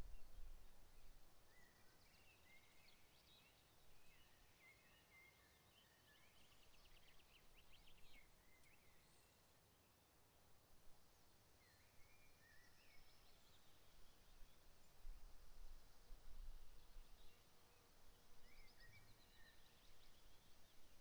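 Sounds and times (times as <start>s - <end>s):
faint songbird whistles and trills: 11.6s - 14.6s, 18.4s - 21.0s.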